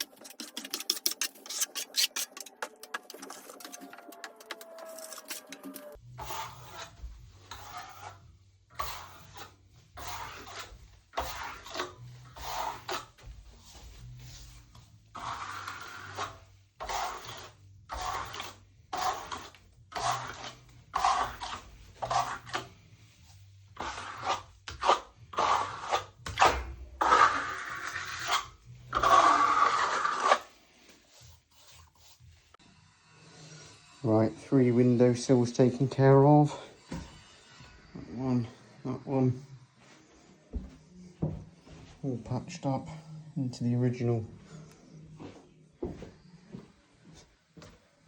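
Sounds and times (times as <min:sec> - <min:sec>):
trowel scraping wet plaster: 0:00.0 - 0:08.2, 0:08.8 - 0:13.2, 0:15.2 - 0:22.8, 0:23.8 - 0:30.5.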